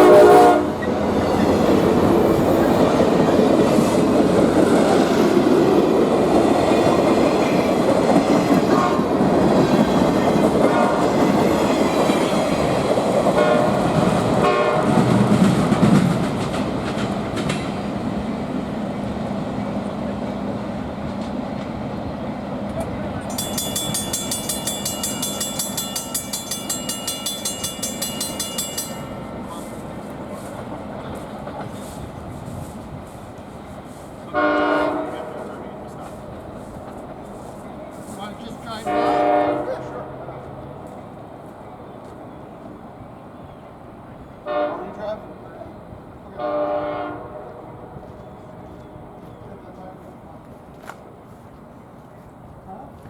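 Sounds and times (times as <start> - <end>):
train wheels clicking over rails: 0.7 - 20.0, 20.7 - 34.4
high rapidly pulsing ringing: 23.3 - 29.7.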